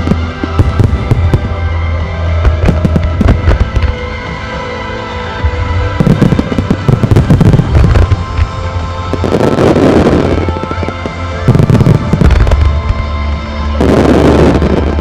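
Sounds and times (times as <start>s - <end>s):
deep firework booms: 0.0s - 1.6s, 6.0s - 8.2s
fireworks bursting and crackling: 0.0s - 4.7s, 5.5s - 15.0s
music with sustained tones: 0.0s - 15.0s.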